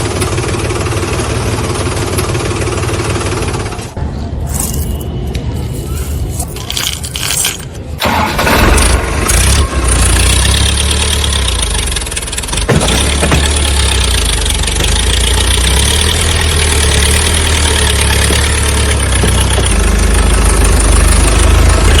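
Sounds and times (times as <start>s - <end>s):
tractor engine running: 0.0s - 22.0s
scattered uneven noise: 3.9s - 8.0s.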